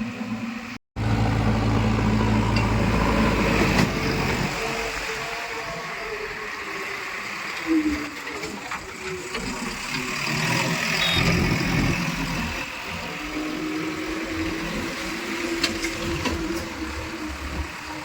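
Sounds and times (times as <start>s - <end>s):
diesel machinery running: 0.0s - 18.0s.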